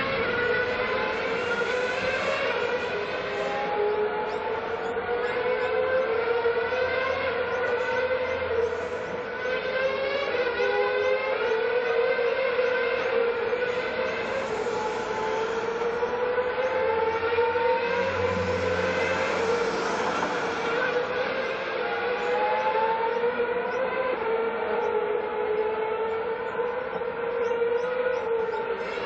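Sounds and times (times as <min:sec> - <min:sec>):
race car engines whining: 0:00.0 - 0:29.0.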